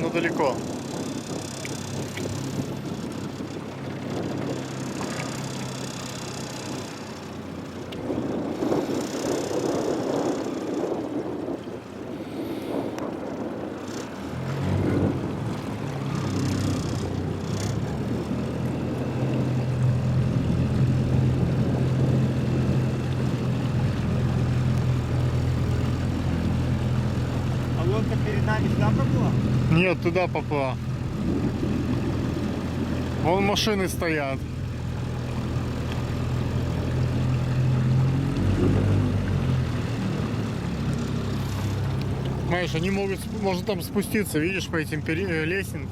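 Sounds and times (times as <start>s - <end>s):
wind noise: 0.0s - 7.1s, 7.9s - 27.6s, 30.9s - 33.3s
outboard motor running: 0.0s - 45.9s
water wash: 0.0s - 45.9s.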